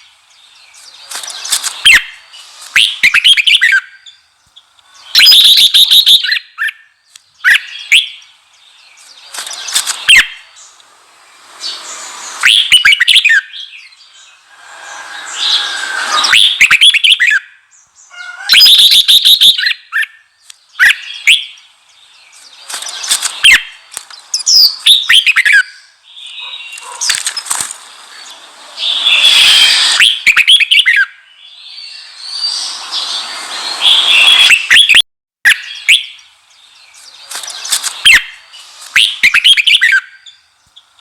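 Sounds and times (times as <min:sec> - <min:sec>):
bulbul singing chattering phrases: 0:35.5 - 0:40.4.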